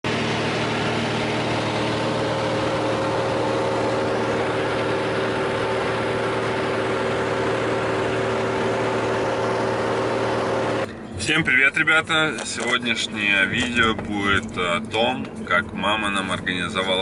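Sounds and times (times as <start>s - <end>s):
light airplane engine droning: 0.1s - 17.0s.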